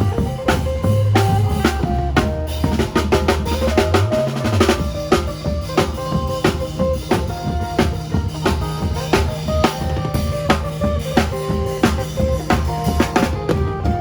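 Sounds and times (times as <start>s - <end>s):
drum kit fast beat: 0.0s - 14.0s
heavy bass line: 0.0s - 14.0s
live band music: 0.0s - 14.0s
lute melody: 0.0s - 14.0s.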